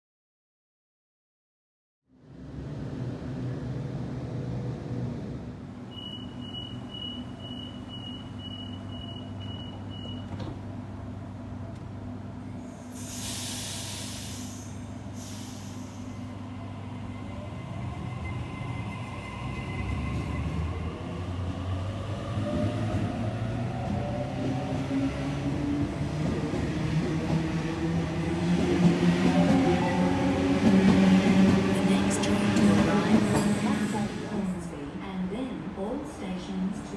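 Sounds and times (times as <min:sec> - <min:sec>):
train low hum: 0:02.1 - 0:36.9
air hiss: 0:12.9 - 0:16.1.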